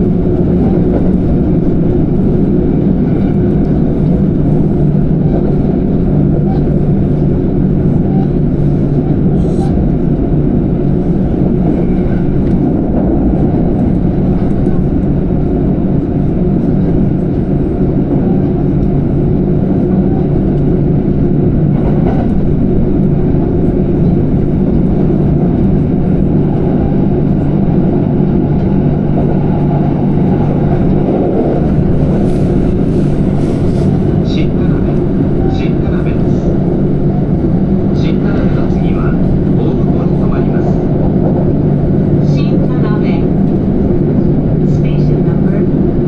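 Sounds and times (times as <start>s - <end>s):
train rumbling: 0.0s - 46.0s.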